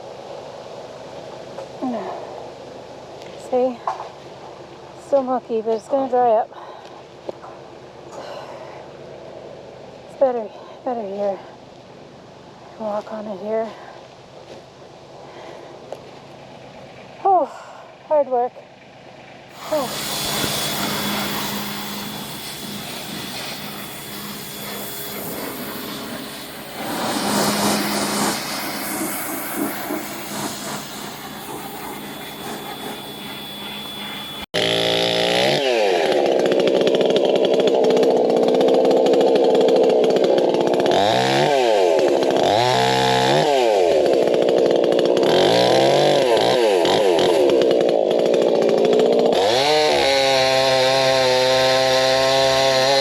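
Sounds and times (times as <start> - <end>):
rushing machine noise: 19.4 - 40.9
chainsaw revving: 19.5 - 53.0.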